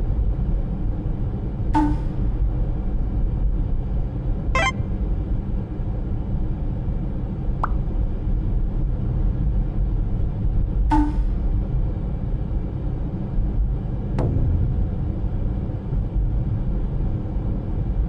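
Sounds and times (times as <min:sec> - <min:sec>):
brief thin tone: 0:04.6 - 0:05.0
short warbling blip: 0:04.6 - 0:05.0.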